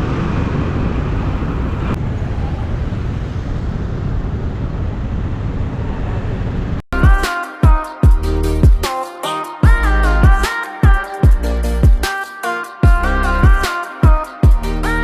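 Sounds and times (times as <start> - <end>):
surrounding traffic: 0.0 - 6.9
music: 6.9 - 15.0.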